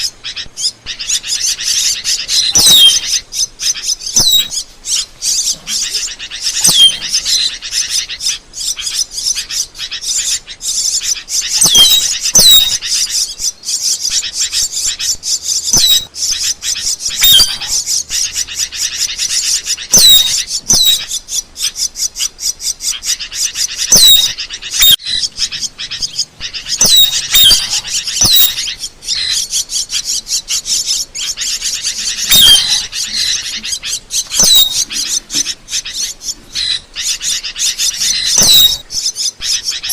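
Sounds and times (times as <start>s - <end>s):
starling chattering and twittering: 0.0s - 39.9s.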